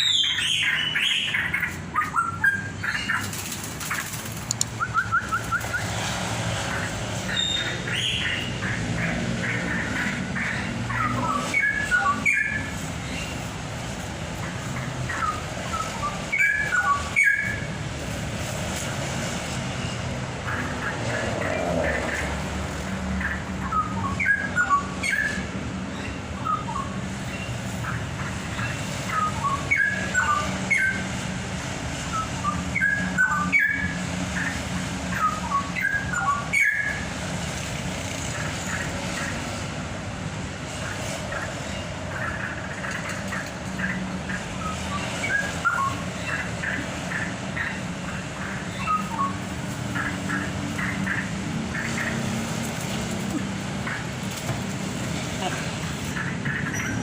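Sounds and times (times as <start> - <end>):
songbird whistling: 4.6 - 6.0, 15.2 - 17.7, 26.4 - 26.9, 44.6 - 46.4, 48.7 - 49.5.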